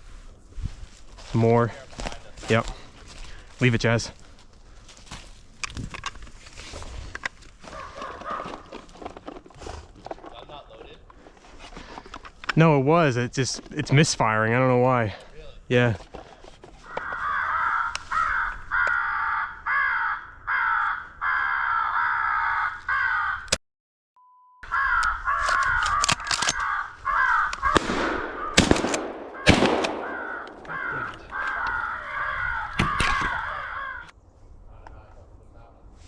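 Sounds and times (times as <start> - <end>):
crows cawing: 7.6 - 8.8, 16.8 - 23.6, 24.6 - 34.2
shotgun shots: 27.7 - 31.1.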